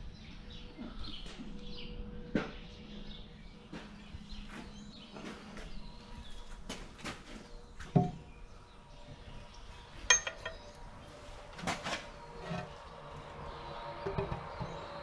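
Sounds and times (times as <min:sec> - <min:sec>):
small birds chirping: 0:00.0 - 0:15.0
sharp knocks and clinks: 0:10.0 - 0:10.7.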